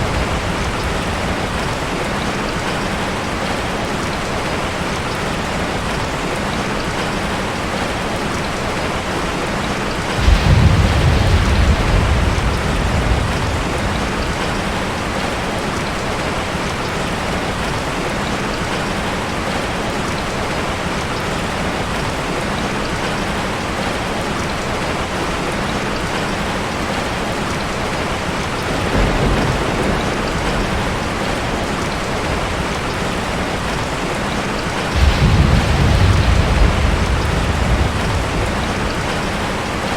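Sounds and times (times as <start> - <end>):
low rumble of thunder: 0.0 - 3.5, 10.1 - 17.0, 28.4 - 39.9
heavy rain falling: 0.0 - 39.9.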